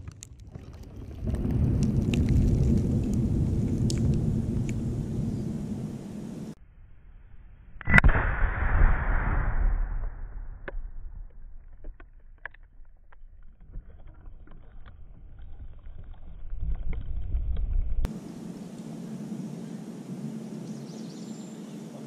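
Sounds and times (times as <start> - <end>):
loud explosion blast: 7.9 - 11.6.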